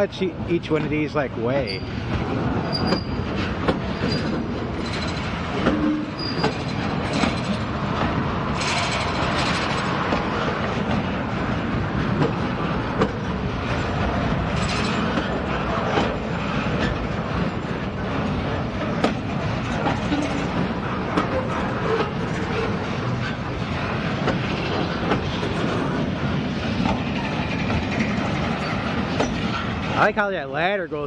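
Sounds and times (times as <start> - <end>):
train wheels clacking over rail joints: 0.6 - 30.1
high wheel squeals: 1.5 - 2.0, 2.7 - 7.6.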